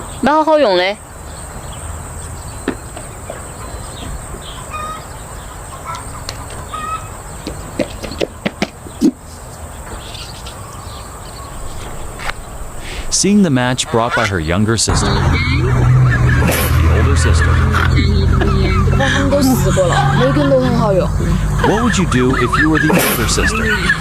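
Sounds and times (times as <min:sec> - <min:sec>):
short bird calls: 0:02.5 - 0:09.4.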